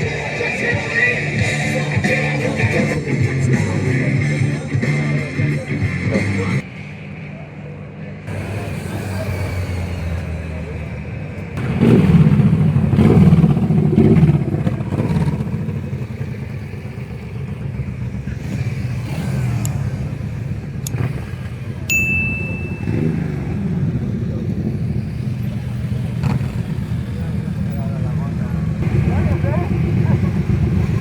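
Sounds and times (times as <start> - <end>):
motorcycle engines revving: 0.0 - 31.0
short high beep: 21.9 - 23.4.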